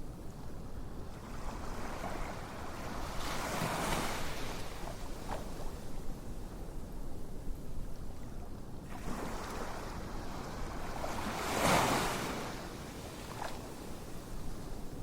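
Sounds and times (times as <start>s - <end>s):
ocean waves washing on shore: 1.0s - 6.4s, 8.8s - 15.0s.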